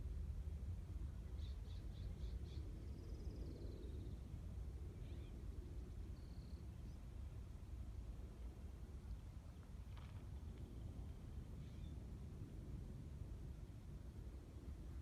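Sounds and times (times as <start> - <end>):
steady low rumble: 0.0 - 15.0
songbirds singing: 1.2 - 7.0.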